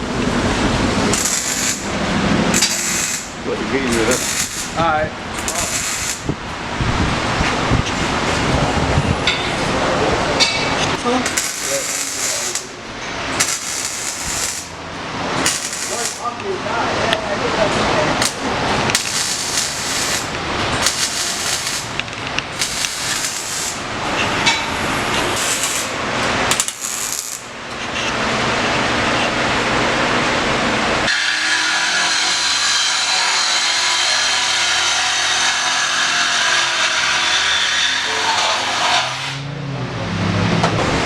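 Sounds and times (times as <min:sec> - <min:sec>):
power tools on metal exhaust: 0:00.0 - 0:06.7, 0:10.4 - 0:17.4, 0:18.0 - 0:27.6, 0:31.1 - 0:39.5.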